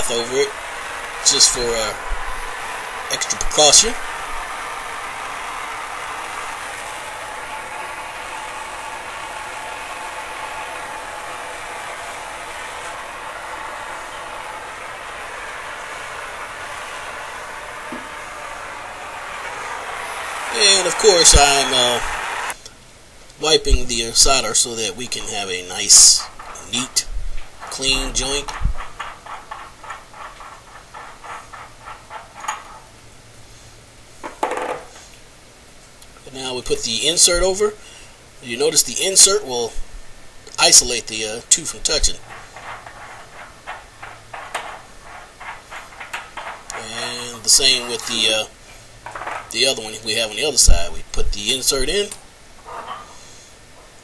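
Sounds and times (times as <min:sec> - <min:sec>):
torch flame hissing: 0:00.0 - 0:22.6
rag rubbing on metal pipe: 0:26.2 - 0:33.0, 0:41.9 - 0:49.9.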